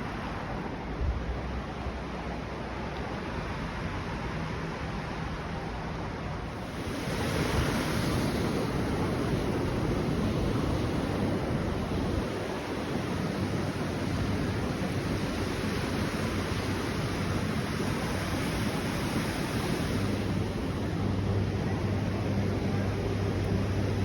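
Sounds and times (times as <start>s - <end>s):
wind buffeting microphone: 6.4s - 24.0s.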